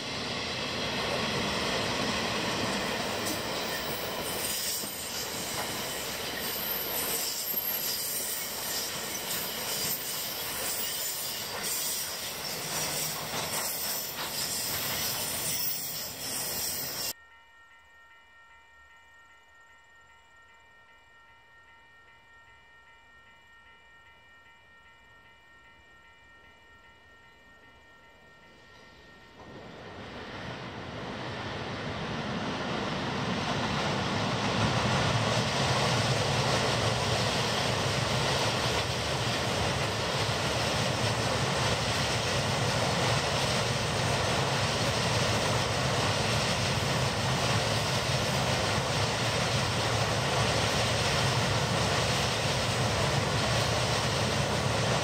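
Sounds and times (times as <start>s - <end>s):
diesel locomotive passing: 0.0s - 17.2s, 26.3s - 55.0s
high wheel squeal: 3.2s - 17.1s
faint steady whine: 17.0s - 55.0s.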